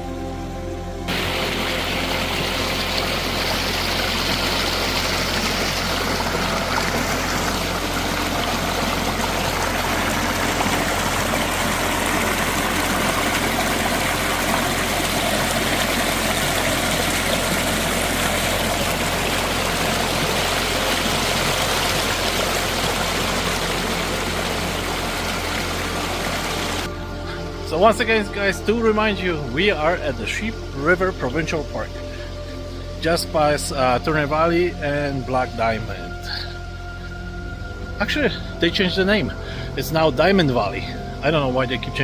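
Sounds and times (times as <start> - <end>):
river water rushing: 1.1 - 27.7.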